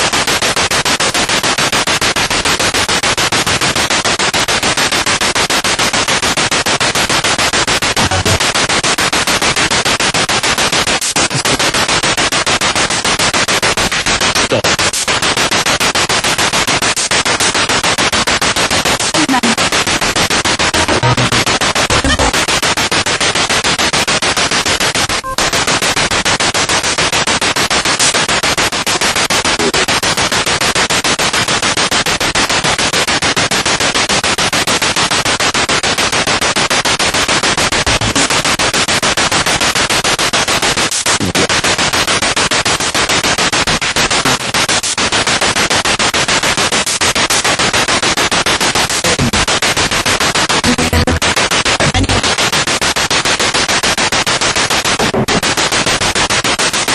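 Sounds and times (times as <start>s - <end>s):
pulsing radio static: 7.3s - 30.0s, 37.7s - 38.6s, 40.4s - 55.8s.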